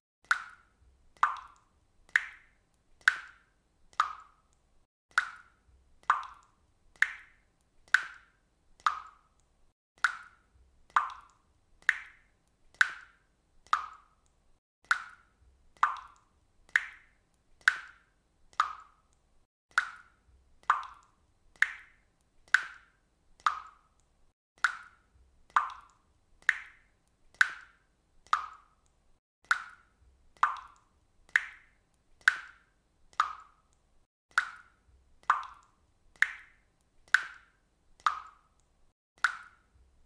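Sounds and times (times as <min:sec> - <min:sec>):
water dripping from a faucet: 0:00.2 - 0:40.0.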